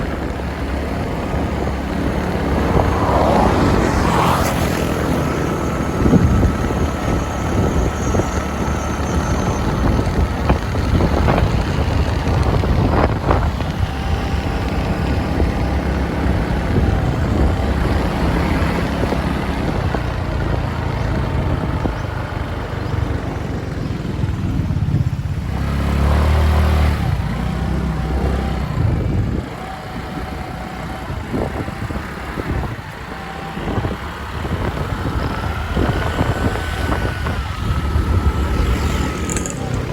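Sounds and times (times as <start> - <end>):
motorbike engine running: 0.0 - 39.9.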